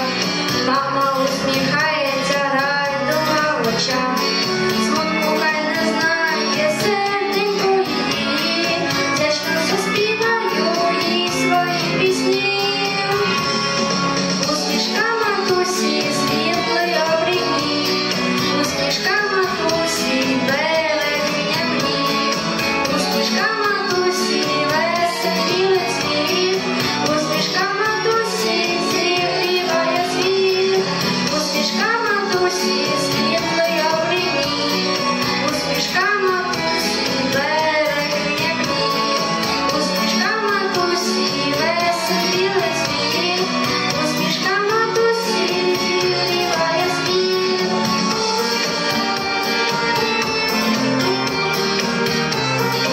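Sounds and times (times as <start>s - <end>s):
person singing: 0.0s - 13.5s, 14.4s - 52.9s
instrumental accompaniment: 0.0s - 52.9s
young voice singing: 14.5s - 22.3s, 39.7s - 47.8s.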